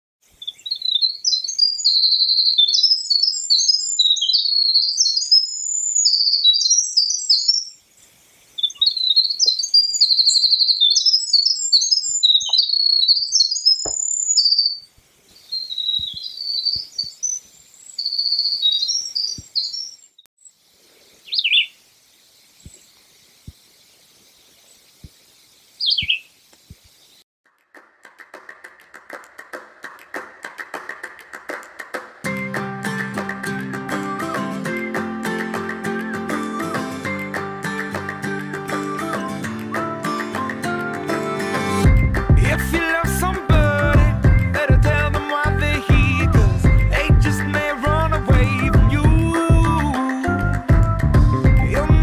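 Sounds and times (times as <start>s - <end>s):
songbird warbling with trills: 0.4s - 7.8s, 8.6s - 14.8s, 15.4s - 20.2s, 21.2s - 21.8s, 25.8s - 26.3s.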